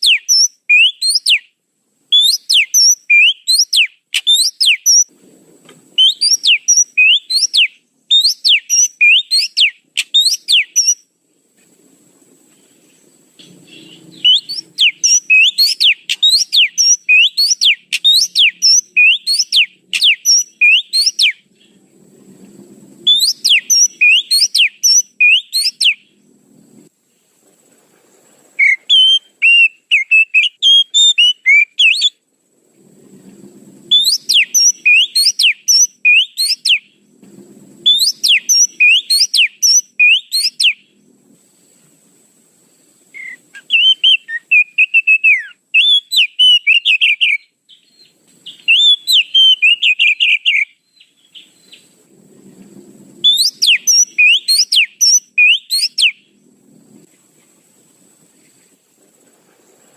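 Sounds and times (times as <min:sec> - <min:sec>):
bird whistling sweeping notes: 0:00.0 - 0:01.4, 0:02.2 - 0:05.1, 0:06.0 - 0:11.0, 0:13.4 - 0:21.4, 0:23.0 - 0:26.0, 0:28.6 - 0:32.2, 0:33.9 - 0:36.9, 0:37.8 - 0:40.8, 0:43.1 - 0:52.0, 0:53.2 - 0:56.3.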